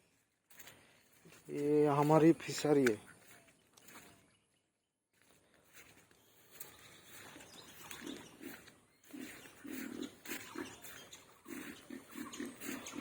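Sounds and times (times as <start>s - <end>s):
pigs grunting: 7.8s - 13.0s.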